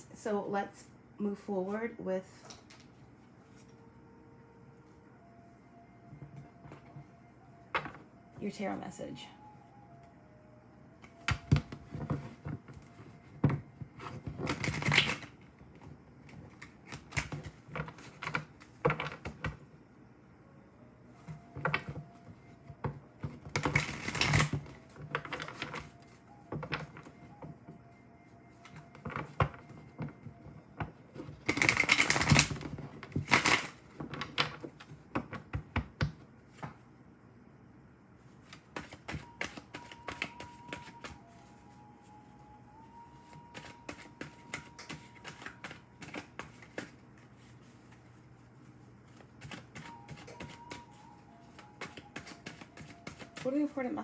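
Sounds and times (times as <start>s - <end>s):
cards riffling: 31.5s - 32.6s, 43.5s - 47.0s, 49.4s - 50.9s, 51.6s - 53.4s
cards clicking and tapping: 38.5s - 41.2s, 43.3s - 47.0s, 49.4s - 53.6s.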